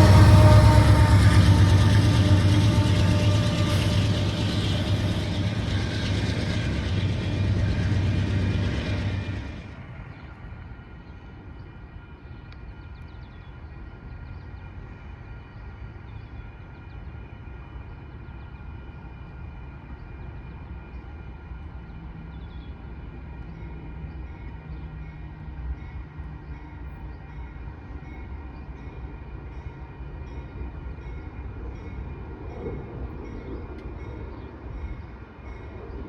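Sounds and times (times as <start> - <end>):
whining tones: 0.0 - 9.8
distant train rumble: 0.0 - 36.0.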